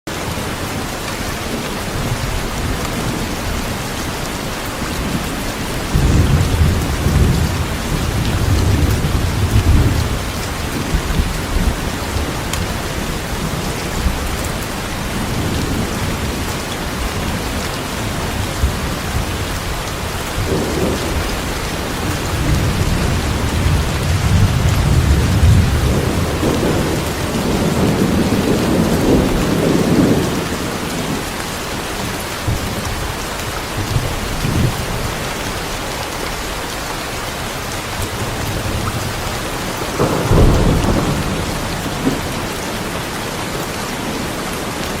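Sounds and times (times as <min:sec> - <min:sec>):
heavy rain: 0:00.1 - 0:45.0
rolling thunder: 0:04.9 - 0:31.3, 0:38.1 - 0:45.0.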